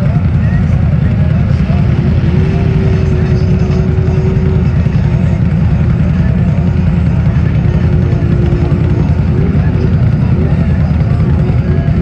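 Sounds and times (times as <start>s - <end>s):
truck engine rumble: 0.0s - 12.0s.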